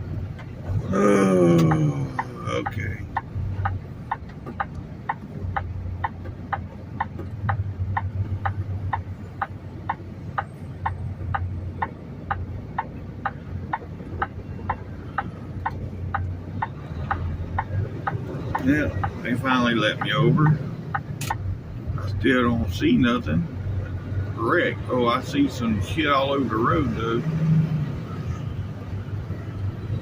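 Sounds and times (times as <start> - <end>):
diesel engine idling: 0.0 - 27.2
turn signal clicking: 1.5 - 21.5.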